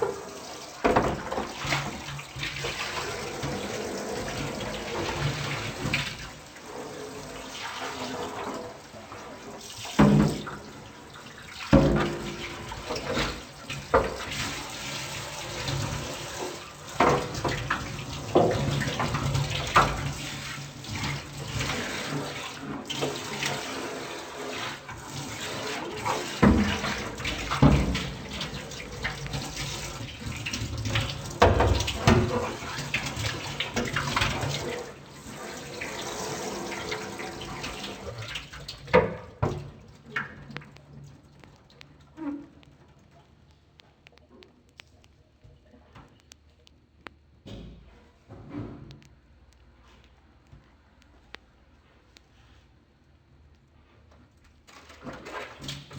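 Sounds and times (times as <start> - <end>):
tap water running into sink: 0.0 - 41.9
items clattering in sink: 0.0 - 42.8, 54.7 - 55.9.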